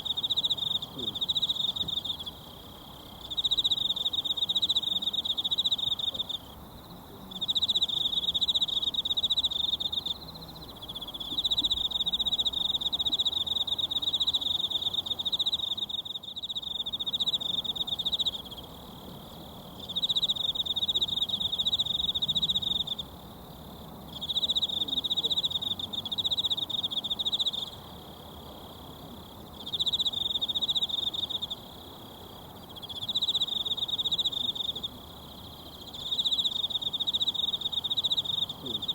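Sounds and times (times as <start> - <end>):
insect trilling: 29.6 - 38.9.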